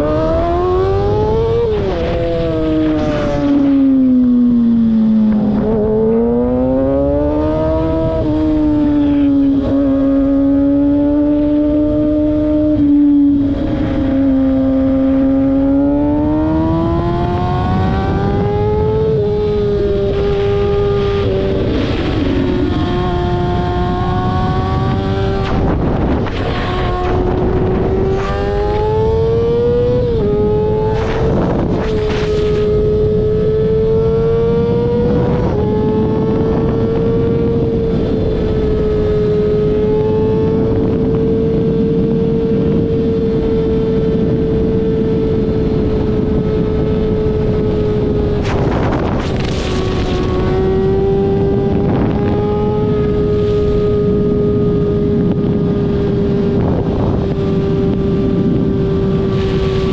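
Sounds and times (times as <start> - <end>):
car engine at high revs: 0.0 - 59.9
dense rumbling noise: 20.4 - 33.0, 47.8 - 52.7.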